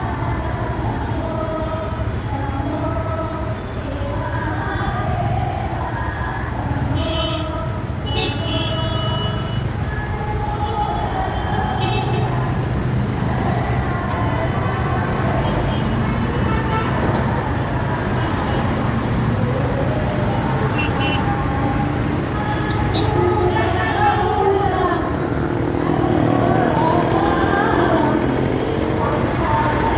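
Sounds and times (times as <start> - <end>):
traffic engines running: 0.0 - 29.9.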